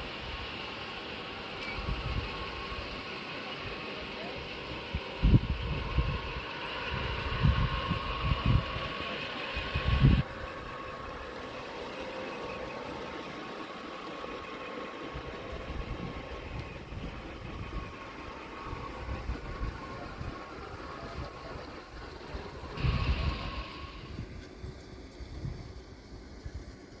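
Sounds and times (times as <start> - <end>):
steady mechanical hum: 0.0 - 27.0
wind buffeting microphone: 4.9 - 11.2, 15.2 - 26.7.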